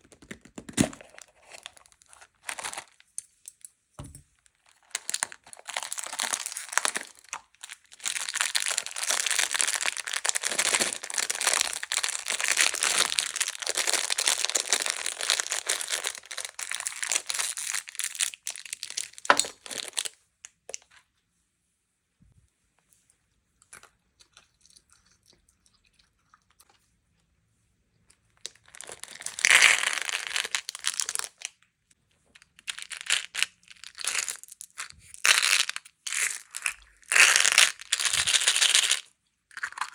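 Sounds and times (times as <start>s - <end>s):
plastic packaging crinkling: 4.6s - 20.1s.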